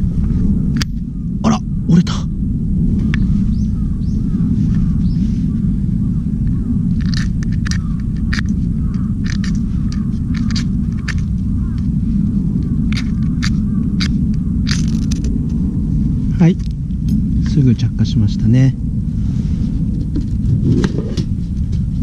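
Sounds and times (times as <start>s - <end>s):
steady low rumble: 0.0s - 22.0s
fire-starter rod scraped with striker: 7.0s - 11.3s.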